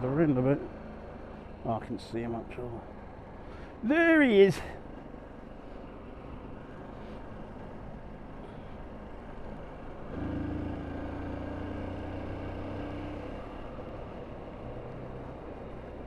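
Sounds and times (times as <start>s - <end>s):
wind and road noise: 0.0s - 16.0s
motorcycle engine hum: 6.7s - 16.0s.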